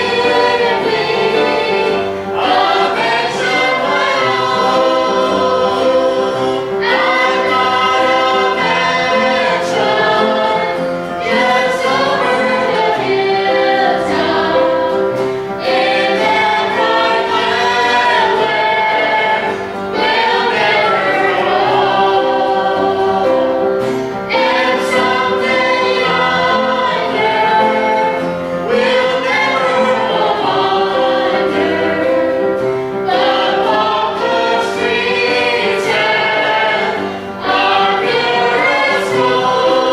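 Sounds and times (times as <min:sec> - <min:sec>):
choir singing gospel song: 0:00.0 - 0:39.9.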